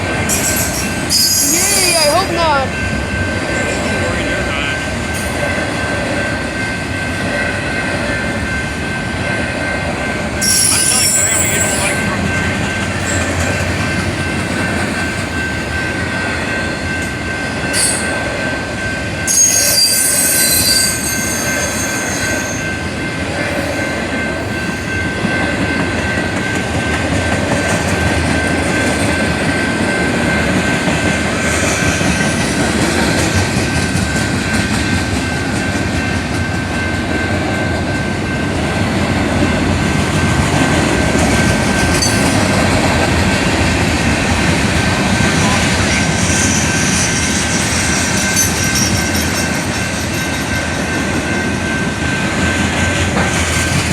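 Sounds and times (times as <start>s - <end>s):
train wheels rumbling on rails: 0.0s - 53.9s
metallic wheel squeal: 0.4s - 2.1s, 10.4s - 12.0s, 19.3s - 22.7s.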